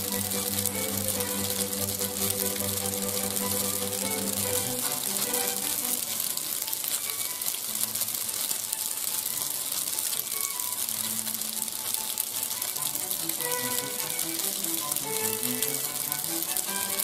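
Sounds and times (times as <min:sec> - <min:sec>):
background music: 0:00.0 - 0:06.7, 0:12.8 - 0:17.0
food sizzling in a pan: 0:00.0 - 0:17.0.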